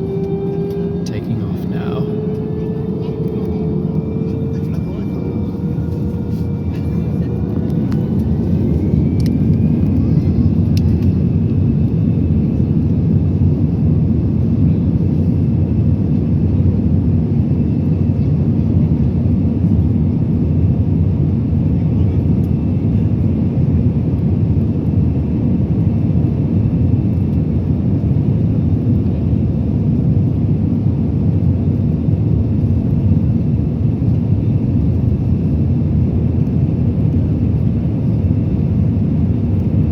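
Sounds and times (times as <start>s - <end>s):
faint rising whine: 0.0s - 12.2s
jet engine cabin roar: 0.0s - 39.9s.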